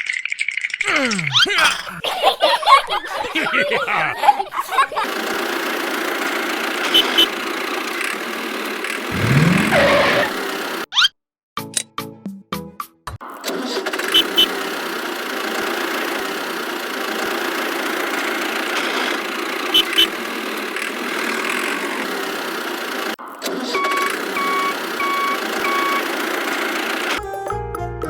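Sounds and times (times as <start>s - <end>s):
small motor running: 5.0s - 10.8s, 14.0s - 23.2s, 23.8s - 27.2s
short beeps: 23.8s - 26.0s.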